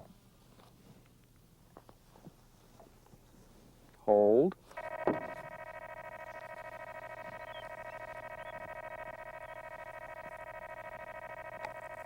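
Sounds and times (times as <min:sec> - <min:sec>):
electronic buzzing beep: 0:04.8 - 0:12.0.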